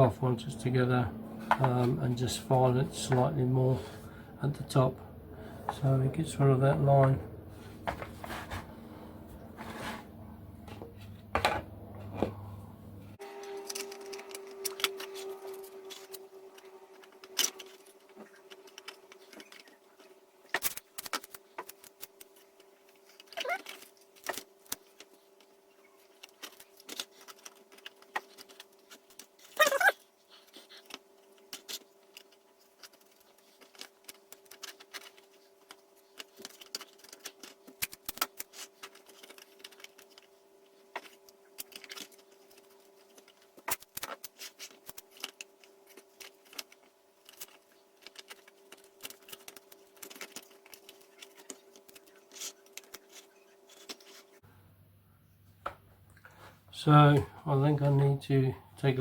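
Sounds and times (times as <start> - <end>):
faint steady hum: 0.0 - 59.0
scraping sound: 7.5 - 11.1.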